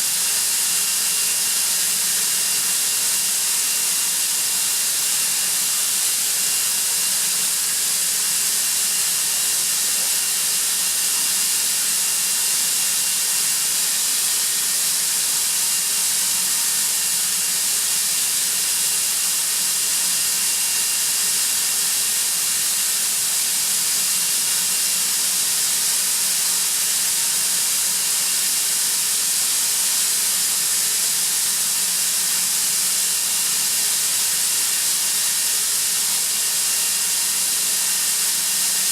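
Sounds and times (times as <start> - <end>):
air compressor hiss: 4.8 - 23.0.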